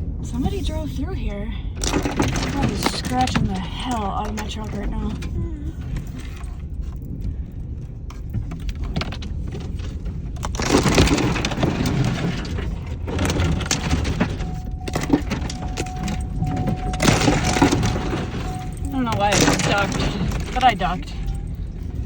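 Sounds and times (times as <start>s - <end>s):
truck rumble: 0.0s - 22.0s
branches scratching truck: 9.2s - 22.0s.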